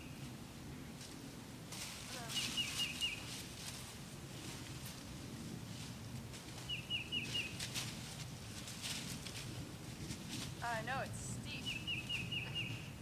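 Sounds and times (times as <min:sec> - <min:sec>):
soft scuffs in leaves: 0:01.0 - 0:13.0
bird chirping: 0:06.7 - 0:07.6, 0:11.5 - 0:13.0.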